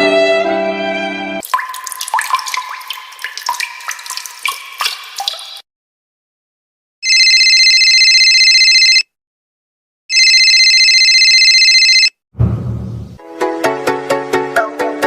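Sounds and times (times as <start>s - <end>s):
telephone ringing: 7.0s - 9.1s, 10.1s - 12.1s
short low rumble: 12.4s - 13.2s.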